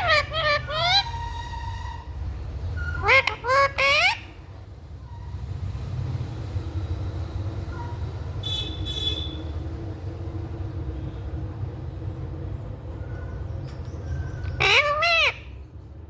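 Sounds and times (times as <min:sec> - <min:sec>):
parrot squawking: 0:00.0 - 0:02.1, 0:02.8 - 0:04.5, 0:14.3 - 0:15.6
low background rumble: 0:00.0 - 0:16.0.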